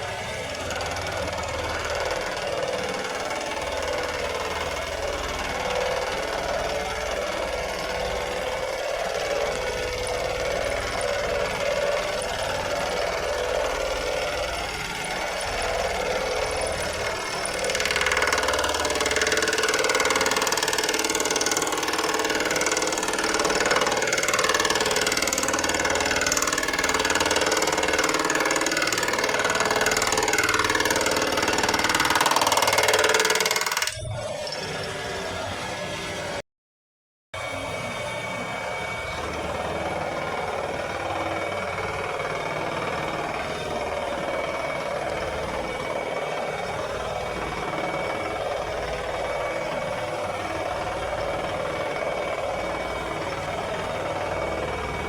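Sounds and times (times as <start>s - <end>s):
lawn mower engine running: 0.0s - 33.8s.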